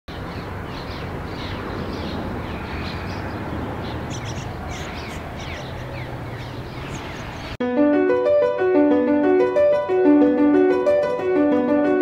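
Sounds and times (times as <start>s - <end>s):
wild birds chirping: 0.1s - 7.6s.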